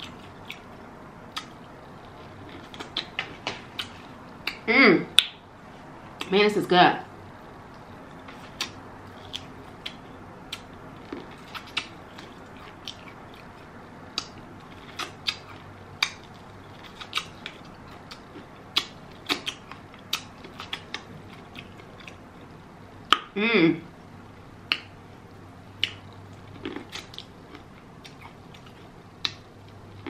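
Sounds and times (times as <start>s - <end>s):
chewing: 0.0s - 4.6s, 7.7s - 23.3s, 25.8s - 30.0s
wet mouth clicks and smacks: 25.8s - 26.1s.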